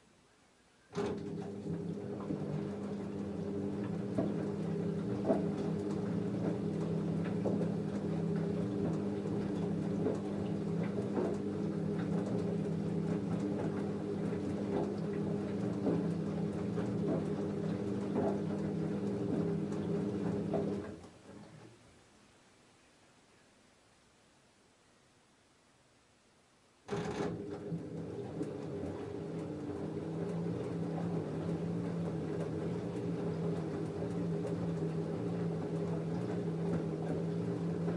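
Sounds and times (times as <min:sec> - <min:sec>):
washing machine electrical hum: 0:00.7 - 0:22.4, 0:26.8 - 0:37.9
water patter: 0:01.2 - 0:21.6.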